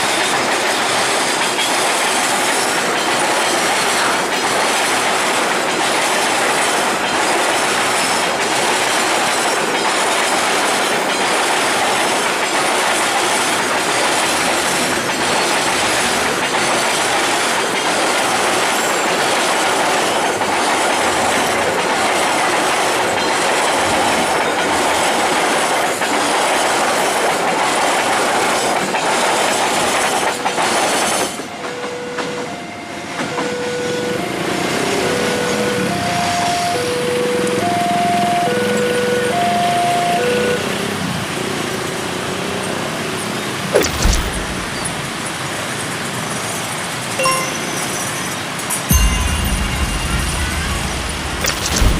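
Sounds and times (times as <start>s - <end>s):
train wheels clicking on rails: 0.0s - 37.7s
two-tone crossing alarm: 31.3s - 40.8s.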